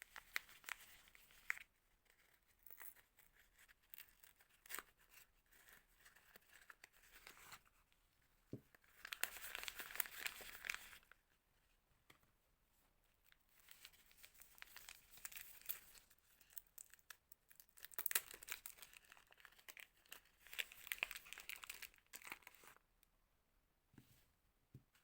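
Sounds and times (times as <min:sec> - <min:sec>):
wrapper crinkling and tearing: 0:09.0 - 0:11.1, 0:13.8 - 0:22.8.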